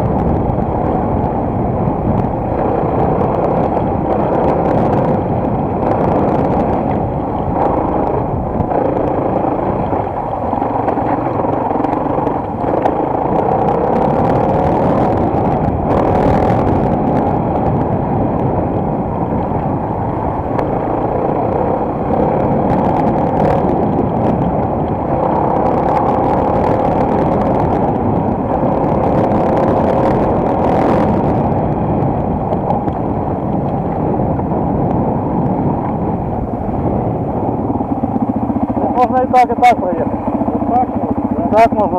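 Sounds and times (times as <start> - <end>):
muffled motorcycle engine revving: 0.0 - 41.9.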